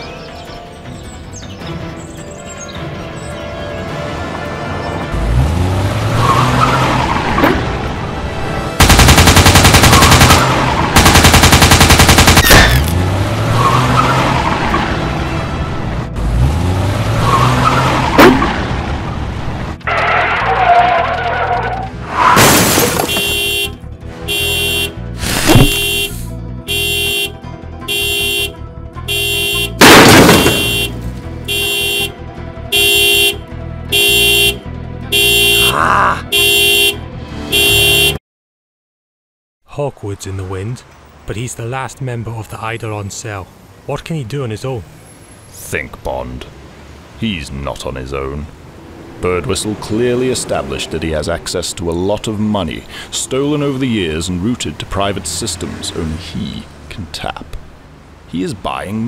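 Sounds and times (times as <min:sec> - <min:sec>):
car engine revving: 0:05.1 - 0:22.2
automatic rifle fire: 0:08.8 - 0:12.8
tyres squealing: 0:19.8 - 0:23.3
loud crash: 0:22.3 - 0:23.1, 0:29.8 - 0:30.7
car alarm horn blasts: 0:23.0 - 0:38.2.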